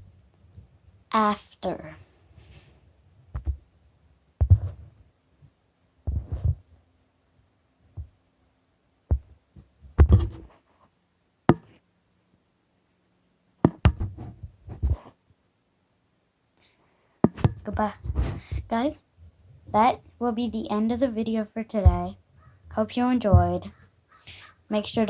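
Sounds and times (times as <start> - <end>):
dull knocks and bumps: 4.4 - 4.8, 6.1 - 6.6, 9.1 - 10.5, 13.6 - 15.0, 17.2 - 18.6, 23.3 - 23.7.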